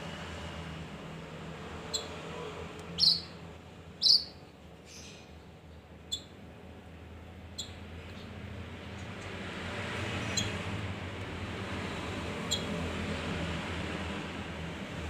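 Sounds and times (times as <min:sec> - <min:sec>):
songbird chirping: 0:02.9 - 0:03.4, 0:04.0 - 0:05.2.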